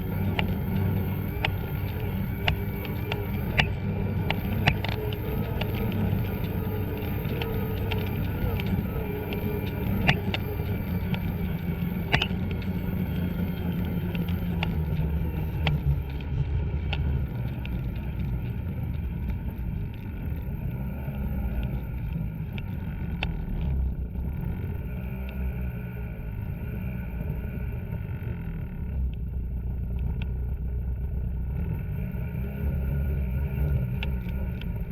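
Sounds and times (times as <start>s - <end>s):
sharp clicks: 0.0s - 20.4s
snowmobile engine running: 0.0s - 34.9s.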